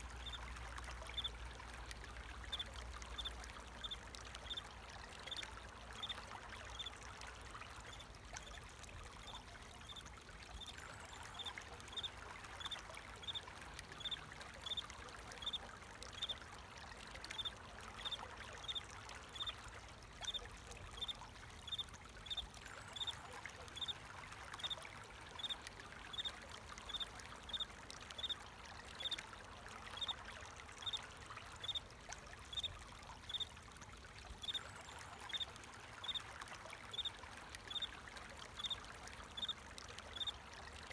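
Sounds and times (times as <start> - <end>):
water trickling: 0.0 - 40.9.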